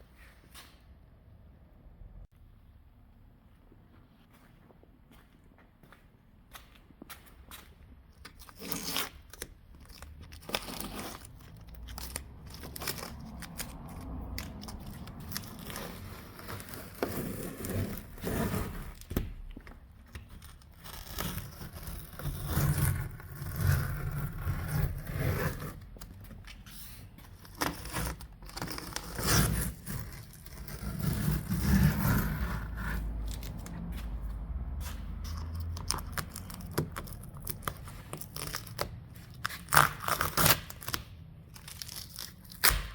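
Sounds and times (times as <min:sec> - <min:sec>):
hands scraping and clicking parts: 0:08.2 - 0:22.0, 0:22.9 - 0:42.9.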